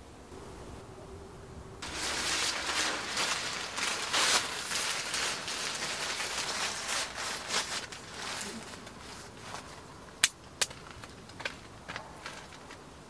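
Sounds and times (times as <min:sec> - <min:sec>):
tent fabric rustling: 0:01.8 - 0:09.8.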